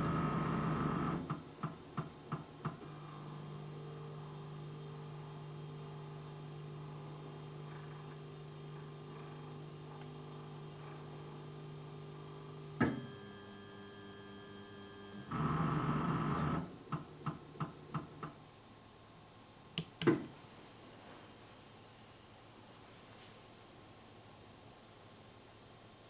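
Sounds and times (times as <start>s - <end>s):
printer motor whir: 2.8s - 16.7s
steady low hum: 2.8s - 19.7s.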